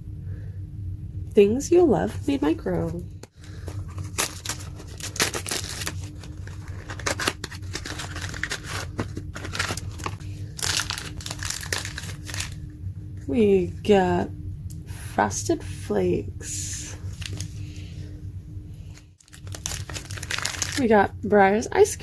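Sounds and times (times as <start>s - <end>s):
plastic and foil packaging crinkling: 3.2s - 12.6s, 17.1s - 17.7s, 19.2s - 20.9s.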